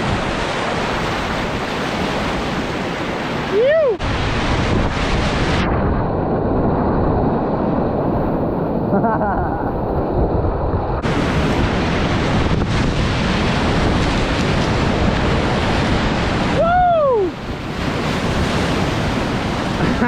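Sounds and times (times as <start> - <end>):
whitewater rushing: 0.0 - 5.7, 11.0 - 20.0
wind buffeting microphone: 0.0 - 20.0
person whooping: 3.5 - 4.0, 16.6 - 17.4.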